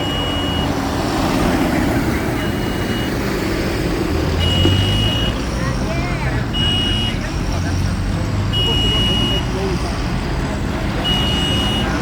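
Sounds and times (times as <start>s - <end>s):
high beep: 0.0s - 0.8s, 2.4s - 3.2s, 4.4s - 5.4s
tractor and lorry engines running: 0.0s - 12.0s.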